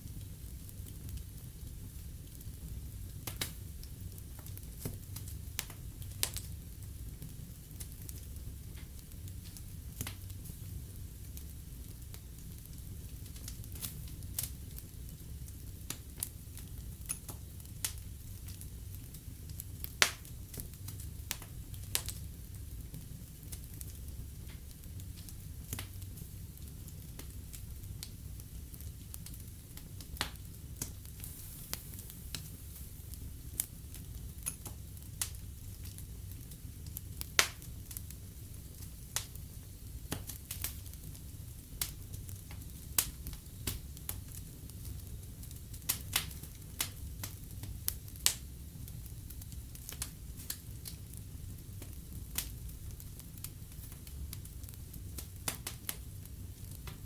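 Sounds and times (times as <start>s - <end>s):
fire crackling and popping: 0.0s - 57.0s
wood fire burning: 0.0s - 57.0s.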